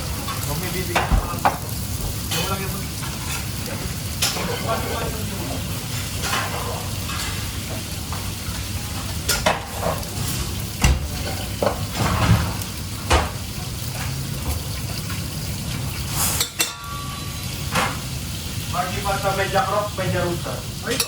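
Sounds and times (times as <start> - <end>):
food sizzling: 0.0 - 21.0
pans and utensils clinking: 0.1 - 18.2, 19.3 - 21.0.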